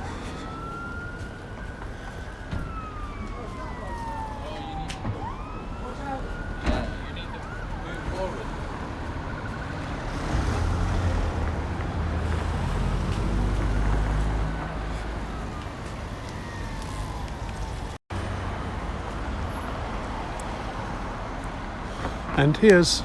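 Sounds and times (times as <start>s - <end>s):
heavy vehicle engine rumble: 0.0s - 23.0s
road traffic: 0.0s - 23.0s.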